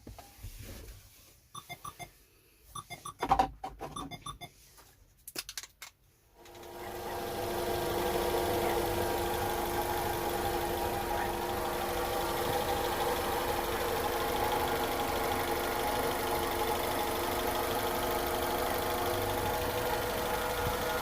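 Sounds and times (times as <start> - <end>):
short beeps: 1.6 - 2.1, 2.8 - 3.3, 4.0 - 4.5
car engine idling with whine: 6.5 - 21.0.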